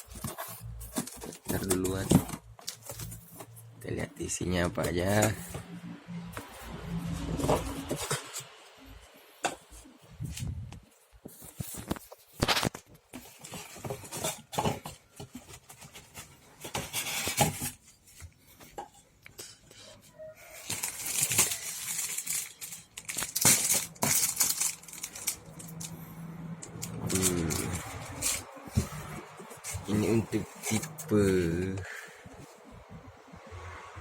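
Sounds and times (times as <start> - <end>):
packaging rustling and tearing: 11.4 - 17.8, 20.4 - 26.0, 26.7 - 31.1.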